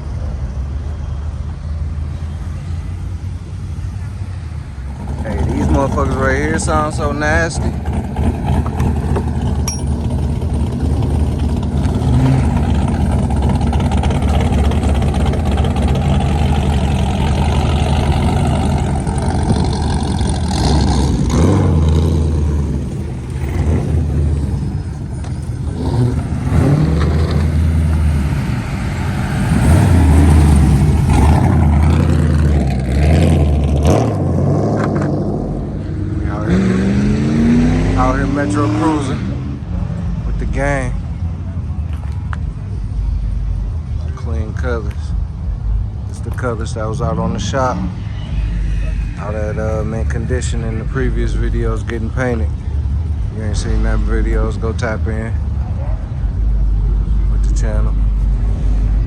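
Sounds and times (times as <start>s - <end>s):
loud car exhausts revving: 4.8s - 41.4s, 42.7s - 59.0s.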